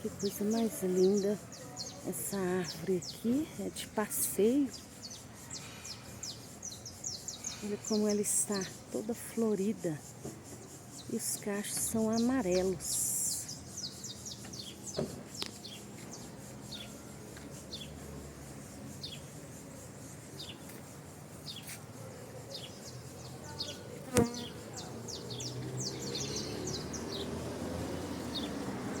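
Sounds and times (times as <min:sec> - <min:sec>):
bees buzzing: 0:23.2 - 0:29.0.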